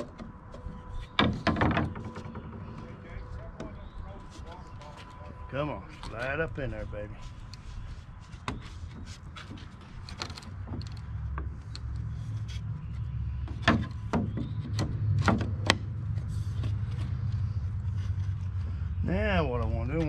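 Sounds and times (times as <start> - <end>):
wooden parts knocking: 0.0 - 3.9, 13.4 - 15.9
low steady rumble: 0.0 - 20.0.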